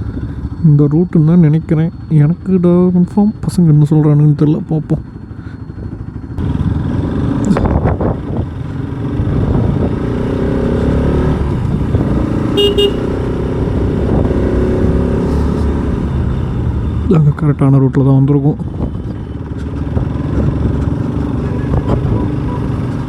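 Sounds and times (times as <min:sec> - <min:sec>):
motorcycle engine rumble: 0:00.0 - 0:23.0
short horn toot: 0:12.5 - 0:13.2.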